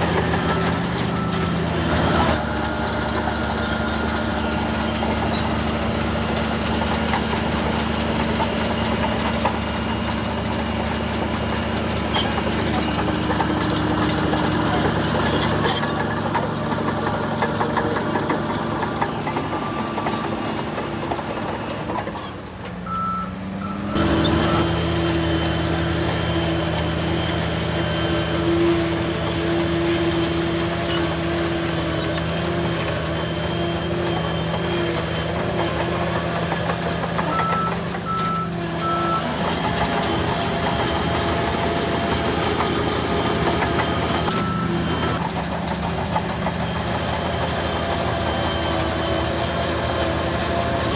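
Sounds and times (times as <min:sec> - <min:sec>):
bulldozer engine running: 0:00.0 - 0:50.9
reversing alarm beeps: 0:22.8 - 0:24.7, 0:37.1 - 0:39.3, 0:43.4 - 0:45.2.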